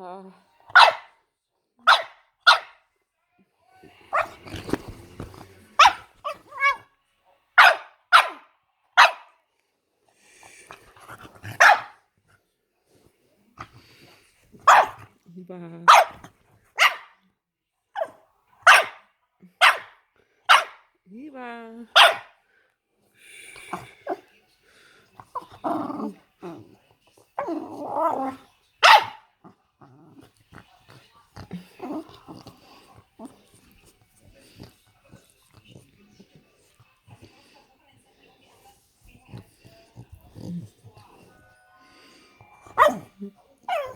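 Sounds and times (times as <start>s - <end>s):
dog squealing and barking: 5.8s - 6.8s.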